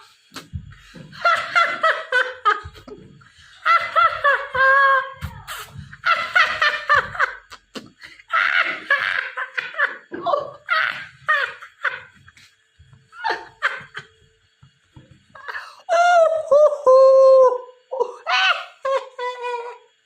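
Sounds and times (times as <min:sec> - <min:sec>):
high-pitched laughter: 0:03.5 - 0:12.2, 0:17.9 - 0:19.9.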